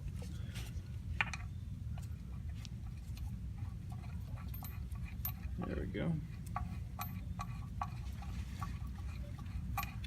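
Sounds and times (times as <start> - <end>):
low background hum: 0.0 - 10.0
hand tools tapping metal: 2.9 - 10.0.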